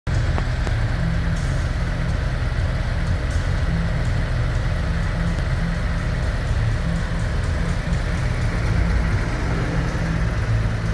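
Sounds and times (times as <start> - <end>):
motorcycle engine idling: 0.1 - 10.9.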